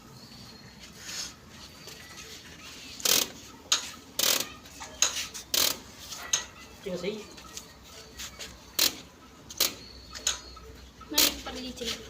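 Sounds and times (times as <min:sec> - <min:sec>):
metal tools clanking and scraping: 0:03.0 - 0:06.7.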